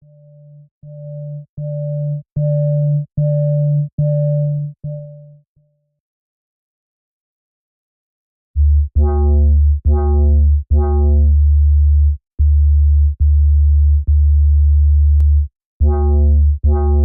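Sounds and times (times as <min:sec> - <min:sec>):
deep synth bass notes: 0:00.1 - 0:05.2, 0:08.6 - 0:17.0.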